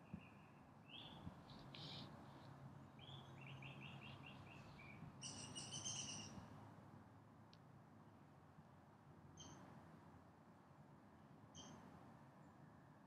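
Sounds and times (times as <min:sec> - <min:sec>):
songbirds chirping: 0:00.0 - 0:06.4.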